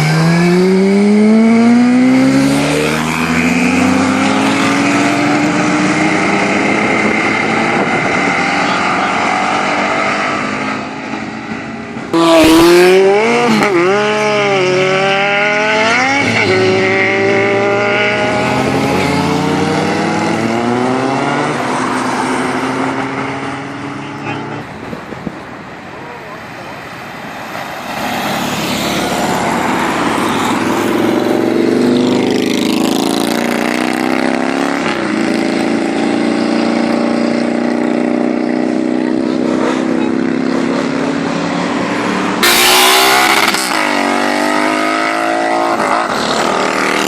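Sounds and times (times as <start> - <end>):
engine revving: 0.0 - 11.4, 12.0 - 24.6, 28.0 - 47.0
engines accelerating hard: 0.0 - 25.3, 27.5 - 47.0.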